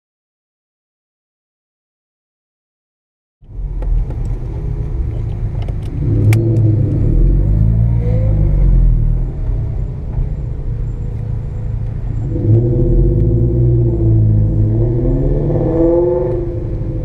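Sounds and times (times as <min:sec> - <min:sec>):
rotary engine revving: 0:05.8 - 0:09.6, 0:11.4 - 0:17.0.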